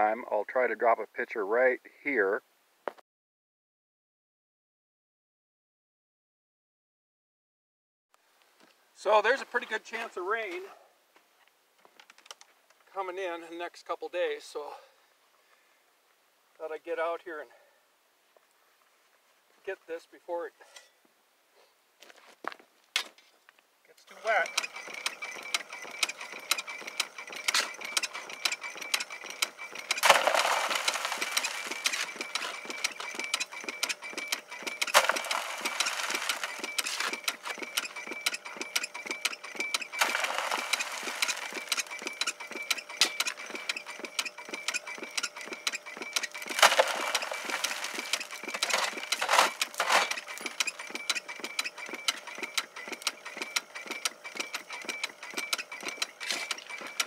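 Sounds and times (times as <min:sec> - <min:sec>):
machine mechanical clatter: 0:24.1 - 0:57.0
dirt and gravel rushing: 0:24.2 - 0:38.7, 0:39.6 - 0:44.2, 0:45.4 - 0:52.1.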